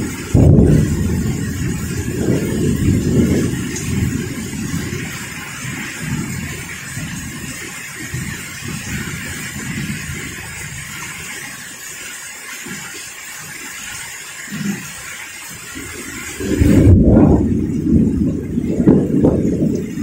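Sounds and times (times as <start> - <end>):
wind buffeting microphone: 0.0 - 11.4, 15.6 - 20.0
heavy rain: 0.0 - 20.0
loud low rumble: 0.3 - 4.2, 16.4 - 19.8.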